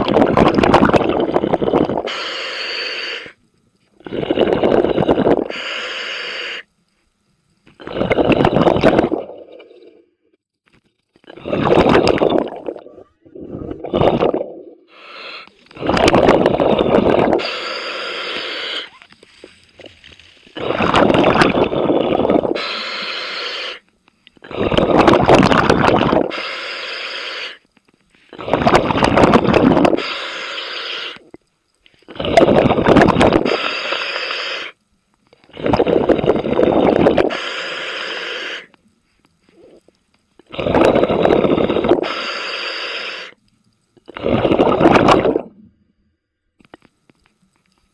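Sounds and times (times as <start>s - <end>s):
underwater bubbling: 0.0s - 10.0s, 11.3s - 45.8s
diver breathing through regulator: 1.2s - 3.4s, 4.0s - 6.7s, 13.3s - 19.6s, 20.6s - 25.4s, 26.2s - 27.6s, 28.3s - 31.2s, 32.1s - 34.8s, 35.4s - 38.8s, 40.5s - 43.4s.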